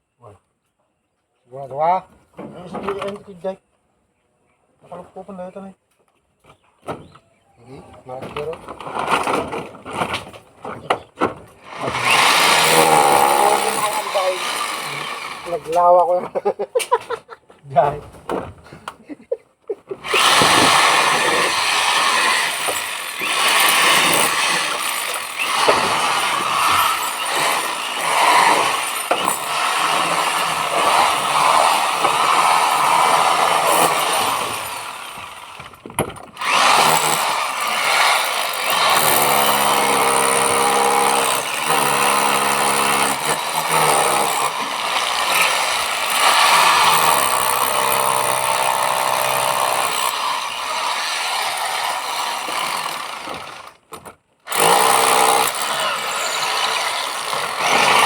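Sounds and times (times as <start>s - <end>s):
hammer drill boring into masonry: 11.7s - 15.9s, 20.0s - 35.8s, 36.4s - 53.8s, 54.5s - 58.0s.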